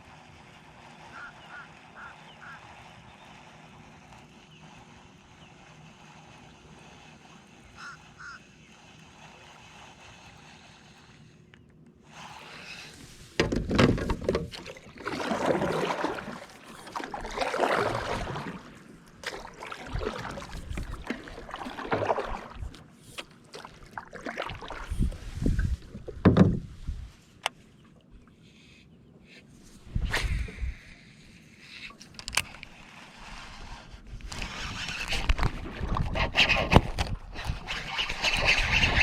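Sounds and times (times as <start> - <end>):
kayak paddle splashing: 0.0 - 28.4, 29.4 - 39.0
paddle knocking on hull: 13.4 - 18.5, 25.9 - 26.7.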